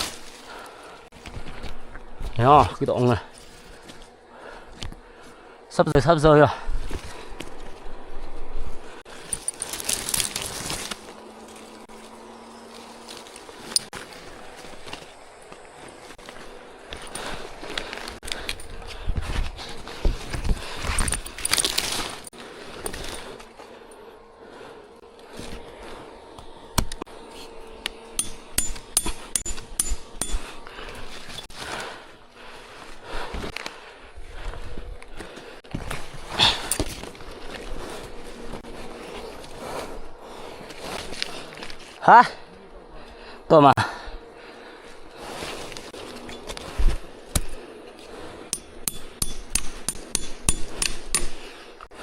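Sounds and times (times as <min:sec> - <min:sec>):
hand tool striking: 0:27.8 - 0:30.7, 0:48.5 - 0:51.5.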